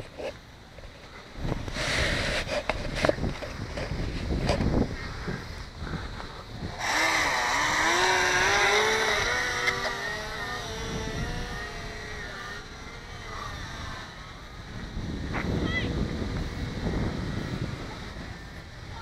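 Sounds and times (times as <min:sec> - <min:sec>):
wind noise on microphone: 0:01.3 - 0:19.0
model plane motor whining: 0:06.5 - 0:15.0.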